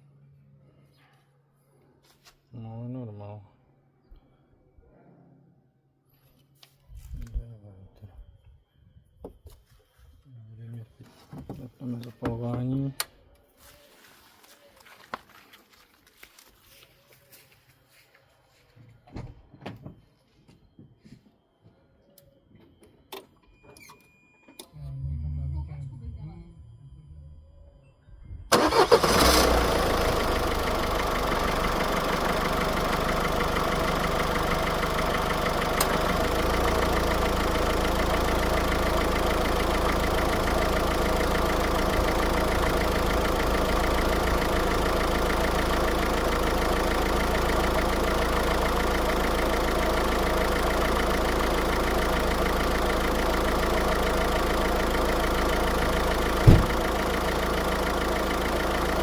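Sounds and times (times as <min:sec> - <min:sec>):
car engine starting and idling: 0:28.5 - 0:59.0
short thump: 0:56.4 - 0:56.8.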